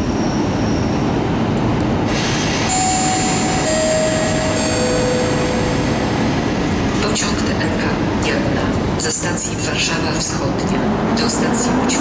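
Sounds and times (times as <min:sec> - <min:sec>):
train moving: 0:00.0 - 0:12.0
hiss: 0:02.1 - 0:02.8
three-note chime: 0:02.7 - 0:06.0.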